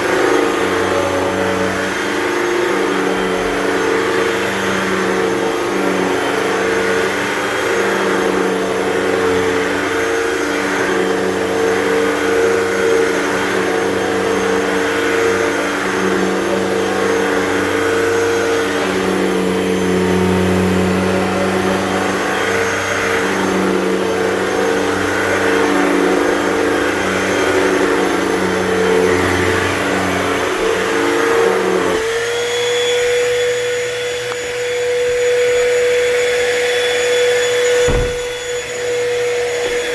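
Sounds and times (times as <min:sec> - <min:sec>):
upright vacuum running on carpet: 0:00.0 - 0:39.9.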